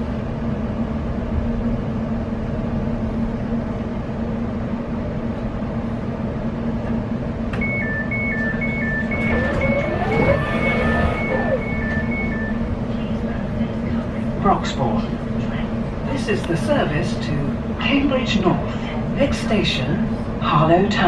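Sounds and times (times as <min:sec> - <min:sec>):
train equipment humming: 0:00.0 - 0:21.0
two-tone door warning beeps: 0:07.6 - 0:12.7
rising whine: 0:07.6 - 0:12.8.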